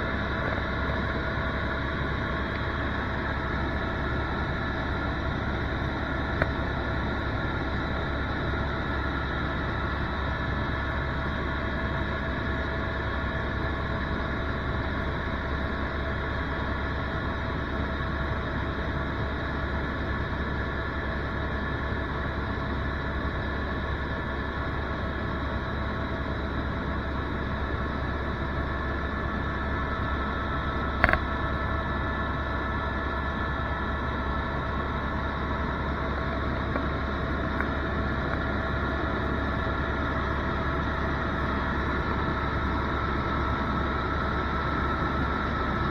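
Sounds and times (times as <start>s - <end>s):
helicopter engine and rotors: 0.0s - 45.9s
high whine: 28.3s - 45.9s.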